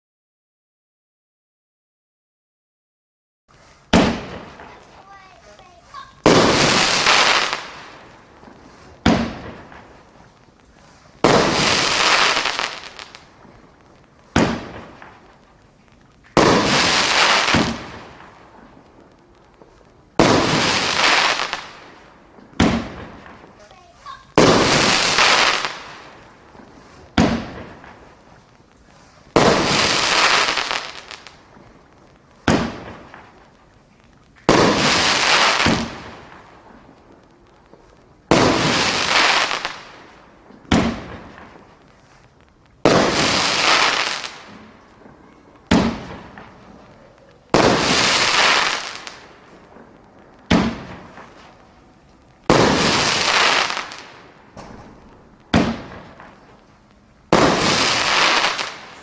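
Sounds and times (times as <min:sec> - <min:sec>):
firework crackling: 0:03.5 - 0:59.0
firework shots banging: 0:03.9 - 0:10.0, 0:11.2 - 0:13.3, 0:14.3 - 0:15.3, 0:16.3 - 0:18.4, 0:20.2 - 0:23.4, 0:24.1 - 0:28.0, 0:29.3 - 0:31.4, 0:32.4 - 0:33.3, 0:34.4 - 0:36.4, 0:38.3 - 0:41.6, 0:42.8 - 0:44.8, 0:45.6 - 0:46.8, 0:47.5 - 0:51.5, 0:52.4 - 0:56.4, 0:57.3 - 0:59.0.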